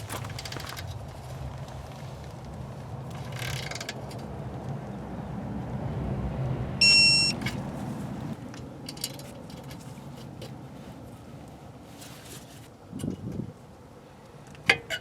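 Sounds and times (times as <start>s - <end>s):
high electronic beep: 6.8s - 7.4s.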